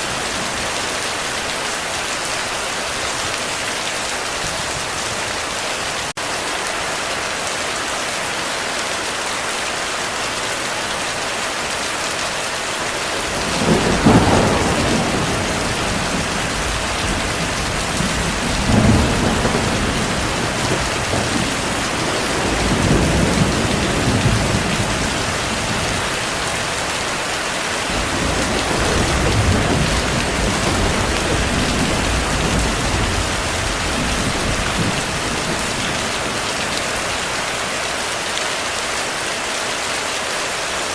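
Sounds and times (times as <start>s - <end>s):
heavy rain falling: 0.0s - 40.9s
thunder clap and rumbling: 13.1s - 26.8s, 27.8s - 37.3s.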